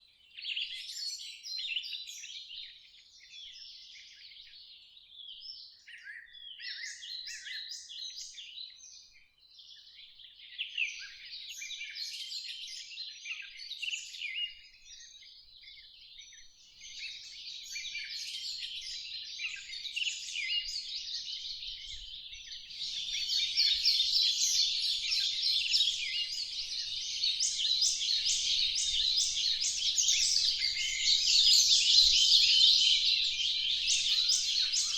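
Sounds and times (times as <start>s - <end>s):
overlapping bird chirps and trills: 20.0s - 34.9s.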